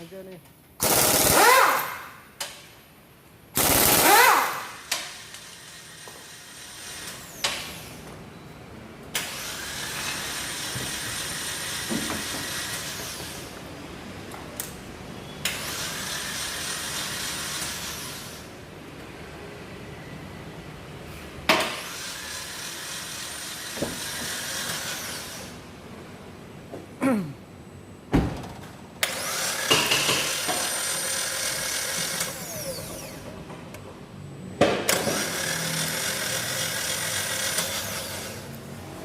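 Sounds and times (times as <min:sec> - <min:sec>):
sharp knocks and clanks: 0:11.8 - 0:12.5, 0:29.6 - 0:30.7.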